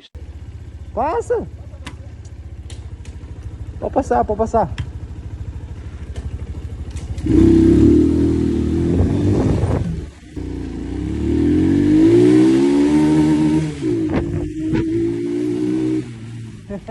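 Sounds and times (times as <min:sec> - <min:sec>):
motorcycle engine accelerating: 0:00.0 - 0:16.9.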